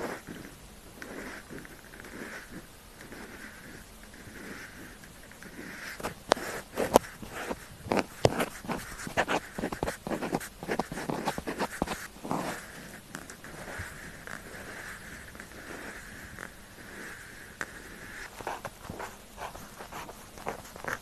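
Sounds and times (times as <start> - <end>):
pen writing on paper: 0.0 - 21.0.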